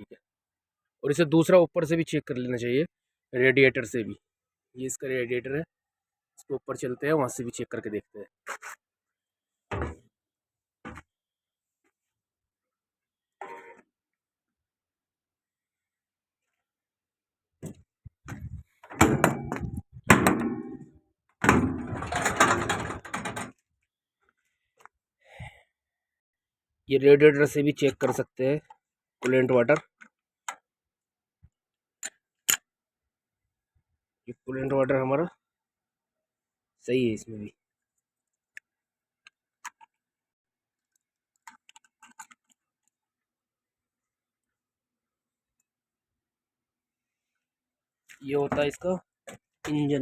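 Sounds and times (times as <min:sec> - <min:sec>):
metal clanking and rattling: 0:18.9 - 0:23.6
faint handling clicks and knocks: 0:40.8 - 0:43.0.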